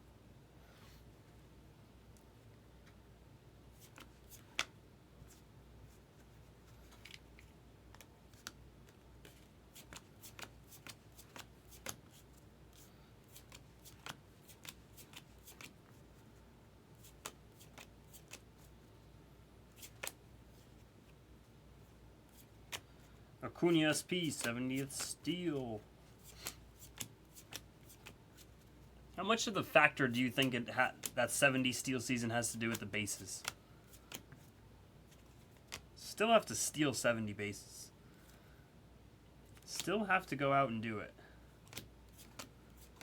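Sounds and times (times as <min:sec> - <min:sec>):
cards clicking and snapping: 0:03.8 - 0:04.7, 0:06.8 - 0:12.2, 0:13.3 - 0:15.8, 0:17.0 - 0:18.5, 0:19.8 - 0:20.2, 0:22.4 - 0:22.9, 0:26.2 - 0:28.2, 0:32.7 - 0:34.4, 0:41.6 - 0:43.0.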